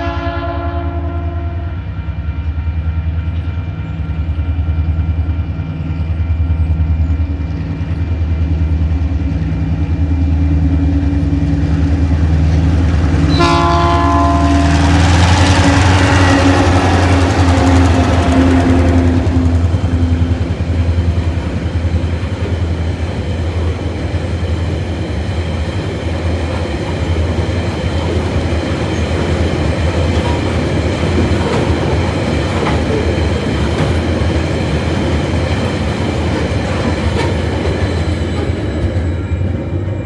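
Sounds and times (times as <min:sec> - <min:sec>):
train wheels rumbling on rails: 0:00.0 - 0:40.0
wheels clicking over rail joints: 0:25.8 - 0:39.1.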